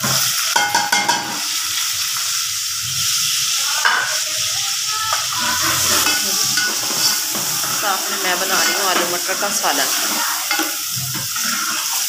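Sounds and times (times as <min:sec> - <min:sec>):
onions sizzling in hot oil: 0:00.0 - 0:12.0
metal spoon scraping a pot: 0:05.3 - 0:12.0.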